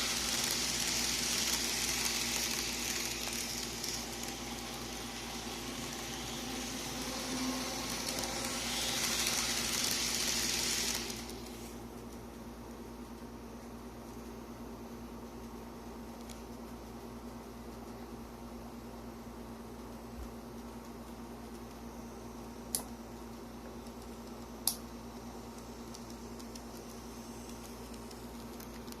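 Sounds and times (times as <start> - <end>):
model train running rumble: 0.0 - 11.8
electric hum: 0.0 - 14.3.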